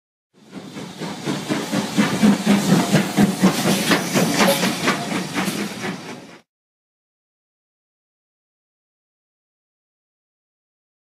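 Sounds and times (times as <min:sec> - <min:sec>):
train running with rhythmic beats: 0:00.4 - 0:06.5.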